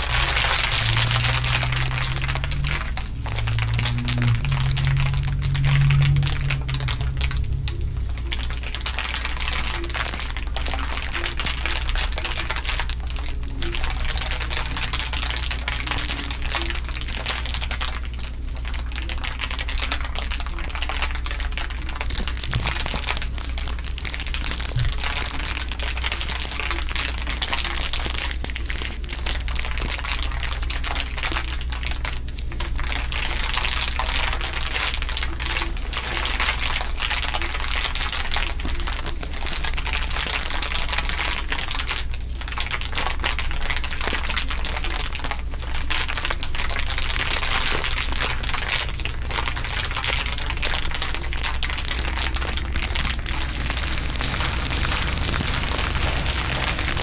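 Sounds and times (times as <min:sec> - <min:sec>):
steady low hum: 0:00.0 - 0:12.3, 0:52.1 - 0:57.0
dense crinkling crackle: 0:00.0 - 0:57.0.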